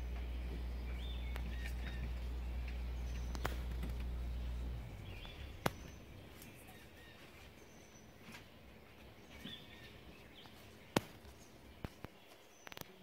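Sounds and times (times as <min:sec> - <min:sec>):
sharp clicks: 0:00.0 - 0:06.6
low steady rumble: 0:00.0 - 0:12.0
birds chirping: 0:00.0 - 0:13.0.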